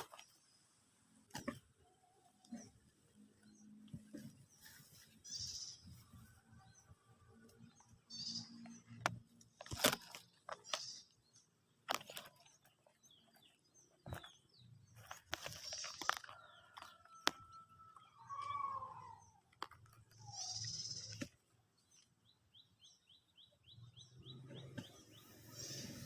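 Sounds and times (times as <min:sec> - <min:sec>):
leaves and twigs rustling: 0:00.0 - 0:00.6, 0:03.4 - 0:17.6.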